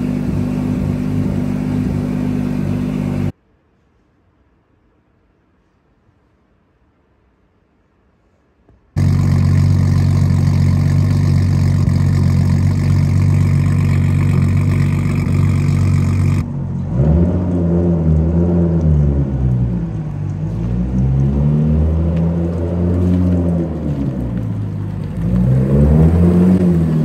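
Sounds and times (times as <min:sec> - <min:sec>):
car engine idling: 0:00.0 - 0:03.3, 0:09.0 - 0:21.1
car engine revving driving off: 0:00.0 - 0:03.3, 0:09.0 - 0:27.0.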